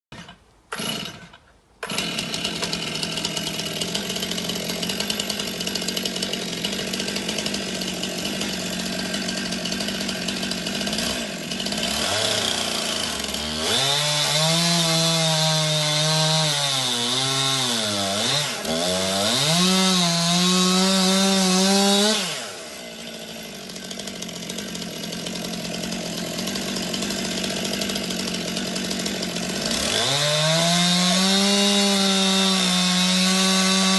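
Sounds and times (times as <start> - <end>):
chainsaw cutting wood: 0.1 - 33.9
chainsaw idling and revving: 0.1 - 33.9.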